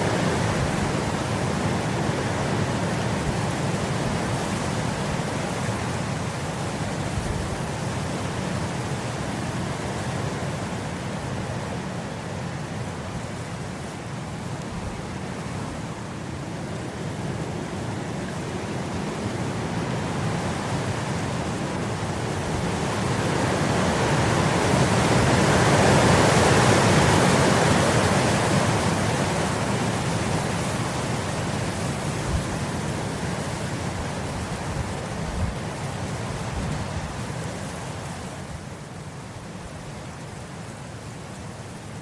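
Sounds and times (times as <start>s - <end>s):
wind blowing through grass: 0.0s - 42.0s.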